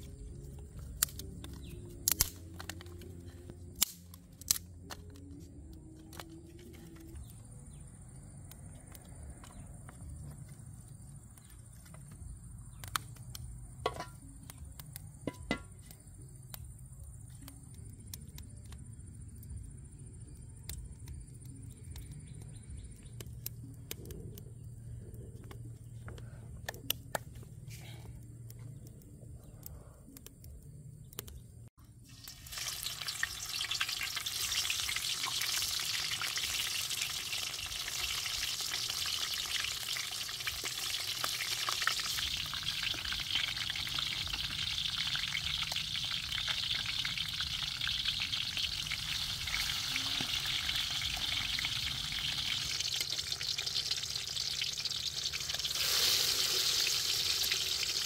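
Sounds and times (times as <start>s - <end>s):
peppers sizzling in hot oil: 0.9s - 2.9s, 13.8s - 16.4s, 31.9s - 58.0s.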